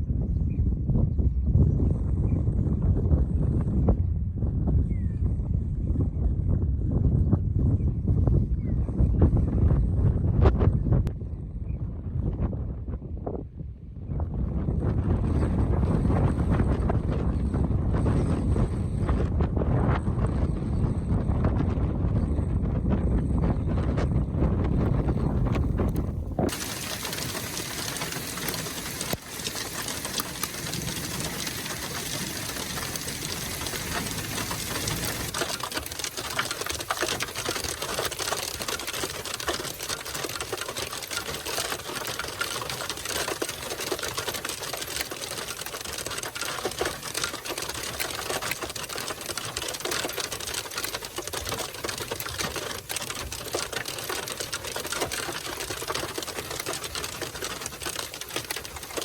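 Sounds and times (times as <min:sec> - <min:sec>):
hail pelting a vehicle roof: 0:24.8 - 0:59.0.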